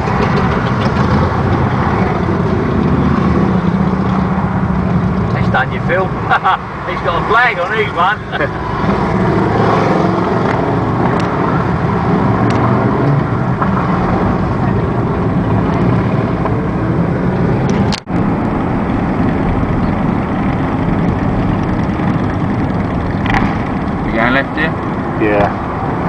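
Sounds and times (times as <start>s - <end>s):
motorcycle engine running: 0.0s - 5.3s, 17.7s - 25.2s
wind and road noise: 0.0s - 26.0s.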